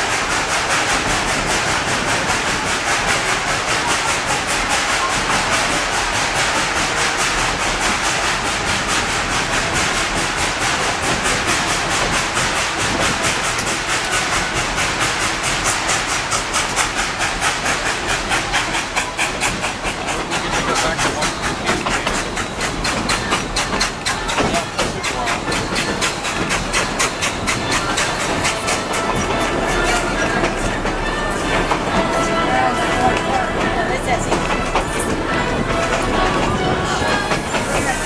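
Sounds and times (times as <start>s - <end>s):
steam hissing: 0.0s - 38.0s
steam train running: 0.0s - 38.0s
train wheels clicking: 0.0s - 38.0s.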